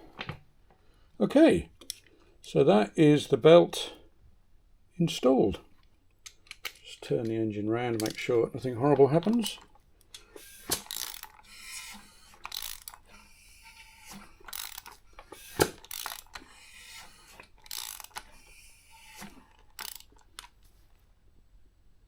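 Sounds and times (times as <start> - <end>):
engine turned over by hand clicking: 10.4 - 20.5.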